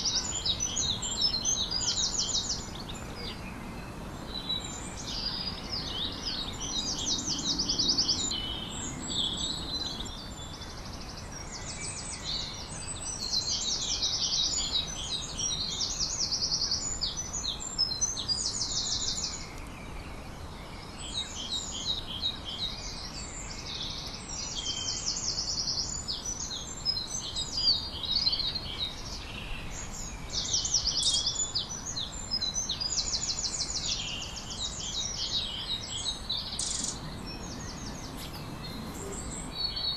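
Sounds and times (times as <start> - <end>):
songbirds singing: 0.0 - 10.1, 36.7 - 39.7
faint steady background noise: 0.0 - 10.4, 36.7 - 39.8.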